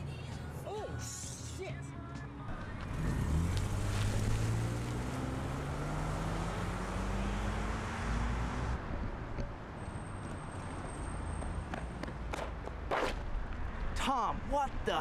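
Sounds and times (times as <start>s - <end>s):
road and tyre noise: 0.0s - 15.0s
car engine accelerating: 2.5s - 9.0s.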